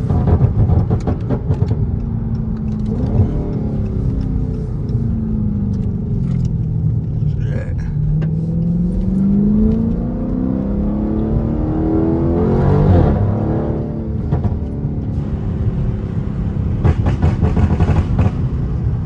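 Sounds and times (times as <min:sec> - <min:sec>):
exhaust pops: 0:00.0 - 0:05.1, 0:14.1 - 0:14.8, 0:16.4 - 0:18.9
car engine accelerating: 0:00.0 - 0:19.0.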